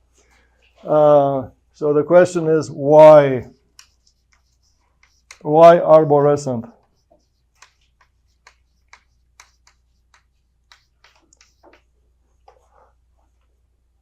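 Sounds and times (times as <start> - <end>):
pen tapping and stroking on paper: 3.6 - 12.7.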